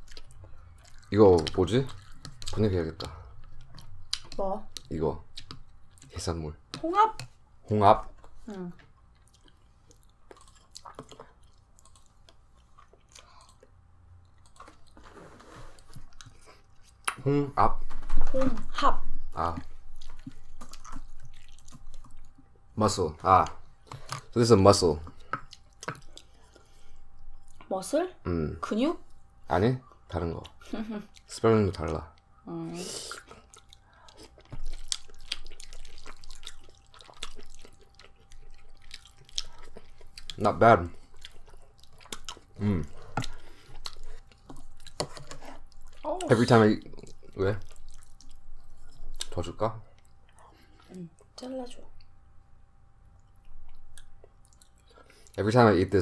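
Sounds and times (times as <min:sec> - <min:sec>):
chewing food: 0:00.0 - 0:07.4, 0:08.0 - 0:15.1, 0:15.8 - 0:17.2, 0:19.4 - 0:22.6, 0:23.2 - 0:27.7, 0:33.1 - 0:52.2, 0:53.1 - 0:55.6.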